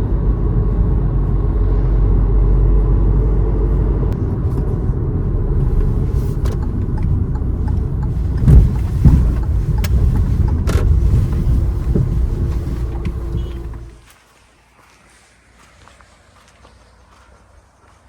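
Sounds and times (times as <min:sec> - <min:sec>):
car engine and tyres rumbling: 0:00.0 - 0:14.0
car jolts: 0:04.4 - 0:14.0.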